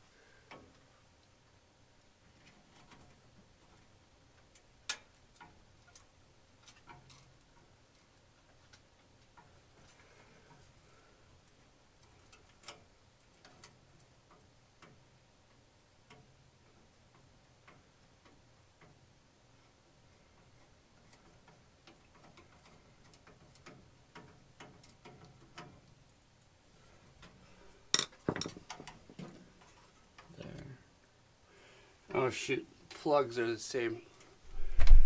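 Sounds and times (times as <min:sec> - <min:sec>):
small metal parts clicking: 0:27.9 - 0:30.3.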